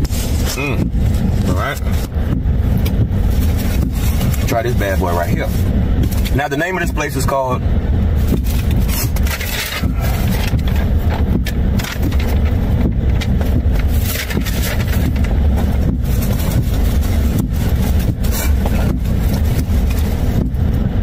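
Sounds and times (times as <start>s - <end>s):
car engine idling: 0.0s - 21.0s
food wrapping rustling: 2.8s - 6.4s, 8.2s - 20.4s.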